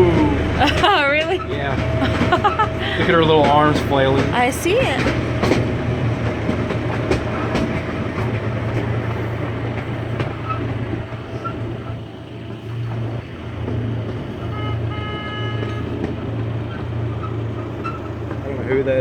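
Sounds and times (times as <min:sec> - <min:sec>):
train rumbling on track: 0:00.0 - 0:19.0
train horn: 0:14.4 - 0:16.1.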